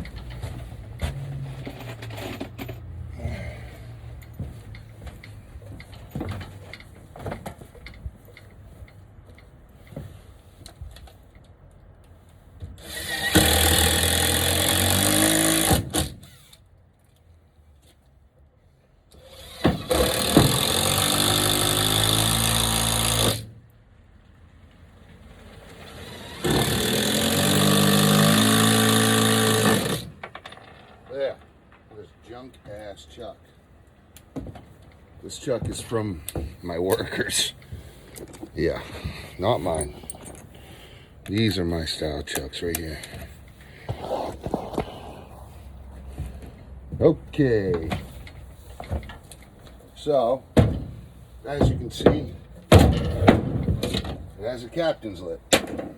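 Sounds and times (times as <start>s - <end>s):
power drill driving screws: 12.8s - 16.6s, 19.1s - 23.5s, 25.8s - 30.2s.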